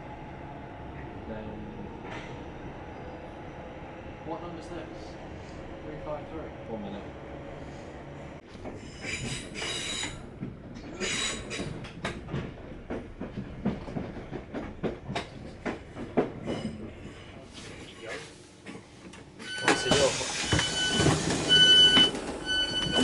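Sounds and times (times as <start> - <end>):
train rumble: 0.0 - 23.0
train wheels clacking over rail joints: 8.6 - 17.3.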